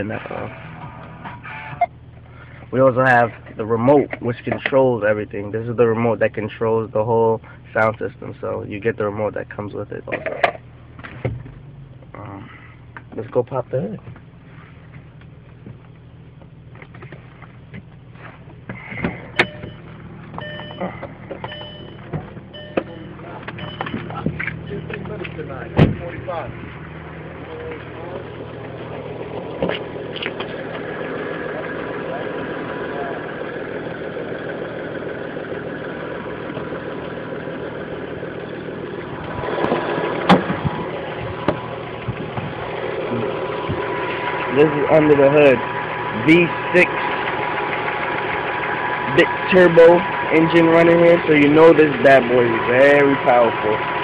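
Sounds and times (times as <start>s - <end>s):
car engine idling: 0.0s - 54.0s
electronic warning chime: 19.4s - 24.1s.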